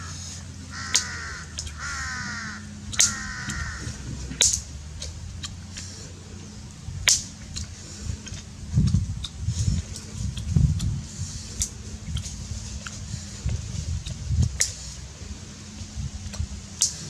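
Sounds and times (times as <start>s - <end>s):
harsh bird calls: 0.0s - 4.8s.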